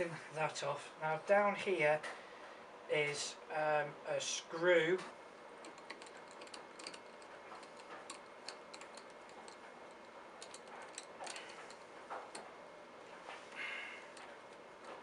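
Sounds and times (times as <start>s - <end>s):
small metal clicks: 5.6s - 12.5s.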